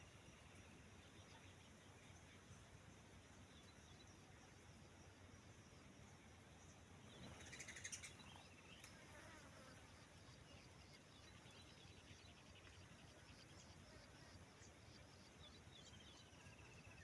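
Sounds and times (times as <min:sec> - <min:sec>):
low background hiss: 0:00.0 - 0:17.0
bird chirps and trills: 0:07.2 - 0:08.5.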